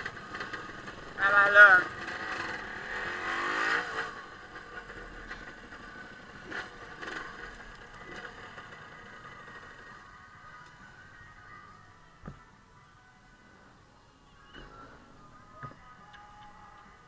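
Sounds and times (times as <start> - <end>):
motorcycle engine revving: 0.0 - 10.1.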